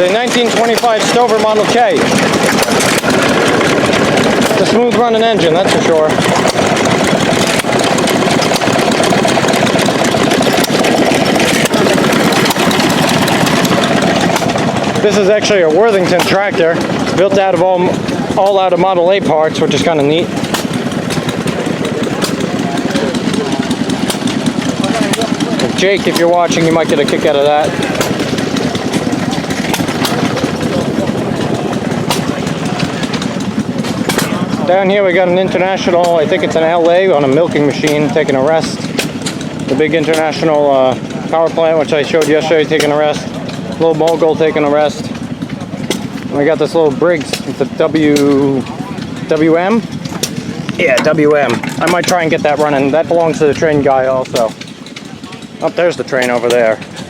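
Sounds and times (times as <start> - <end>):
stationary engine running: 0.0 - 57.0
sharp clicks: 6.1 - 17.3, 19.8 - 34.5.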